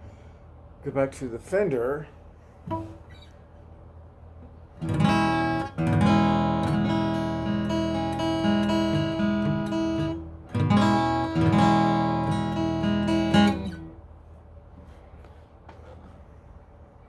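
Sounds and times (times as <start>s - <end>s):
acoustic guitar chords: 2.7s - 3.1s, 4.8s - 14.0s.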